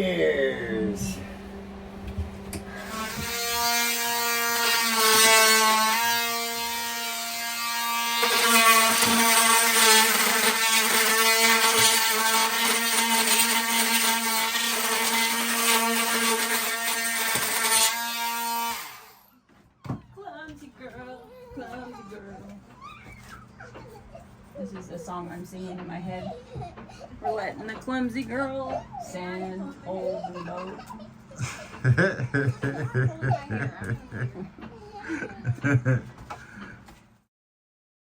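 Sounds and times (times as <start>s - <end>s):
power sander on wood: 2.3s - 19.3s.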